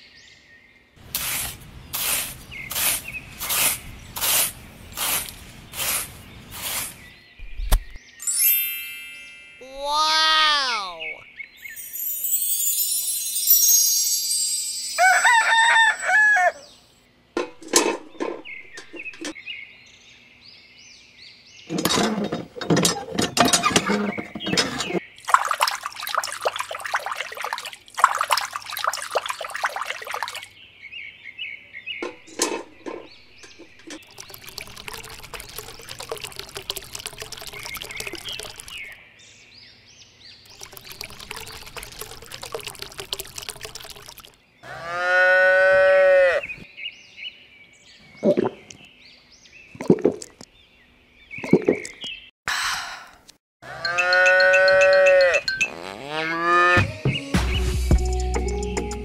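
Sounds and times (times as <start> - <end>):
water pouring and splashing: 1.0 - 8.0, 21.9 - 30.5, 32.0 - 39.0, 40.5 - 44.4, 49.8 - 50.5
rooster crowing: 15.0 - 16.8.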